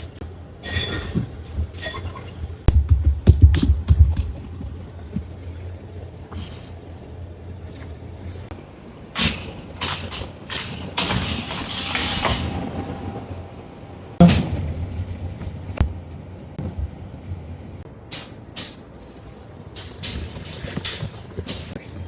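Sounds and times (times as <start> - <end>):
steady low hum: 0.0 - 22.0
knocks and clicks: 2.7 - 4.8, 18.1 - 19.2, 19.8 - 21.8.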